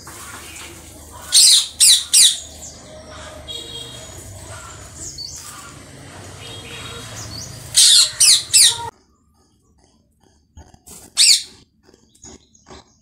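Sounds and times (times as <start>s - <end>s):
bird calling: 0.1s - 8.9s.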